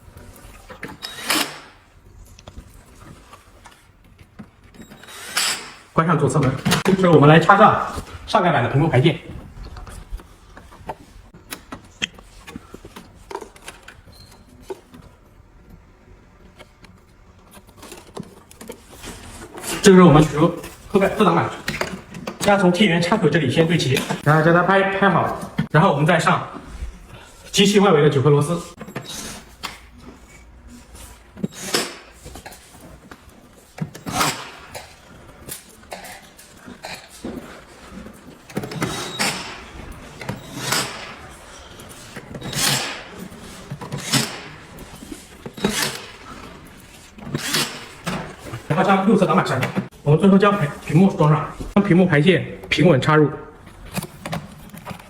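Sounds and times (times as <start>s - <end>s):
screwdriver clicks and scrapes: 47.2s - 48.2s.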